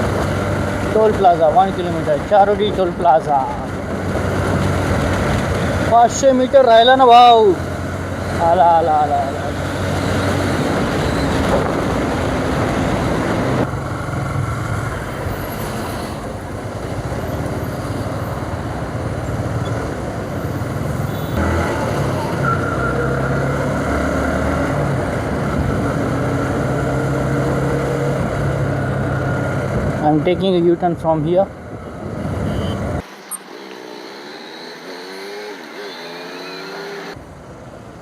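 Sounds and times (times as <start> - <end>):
wind noise: 9.6 - 13.7.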